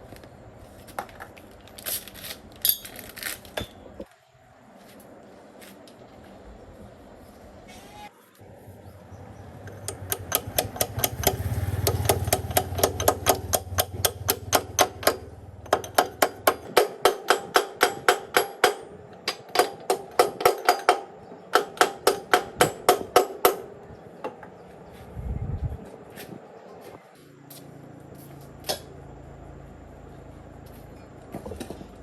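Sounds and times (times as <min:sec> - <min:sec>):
hammer striking metal: 0:09.7 - 0:23.7.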